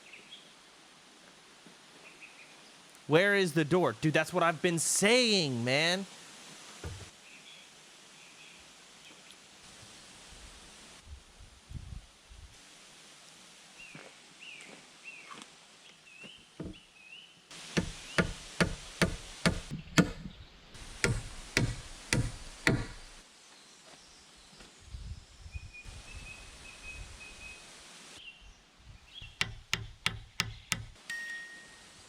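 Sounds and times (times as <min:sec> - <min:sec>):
birds chirping: 0:17.8 - 0:23.2, 0:28.2 - 0:30.9
heavy tool blows on timber: 0:17.8 - 0:23.2.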